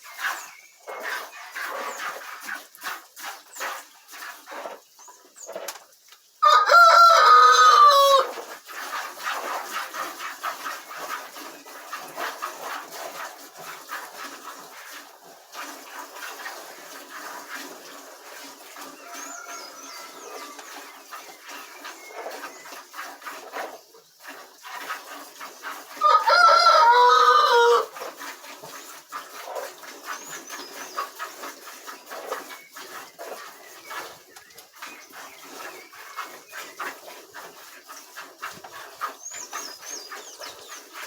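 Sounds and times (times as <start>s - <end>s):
small birds chirping: 0.0s - 2.2s, 18.9s - 24.4s, 30.0s - 37.0s, 38.9s - 41.0s
rooster crowing: 6.4s - 8.3s, 19.0s - 20.7s, 26.0s - 27.9s.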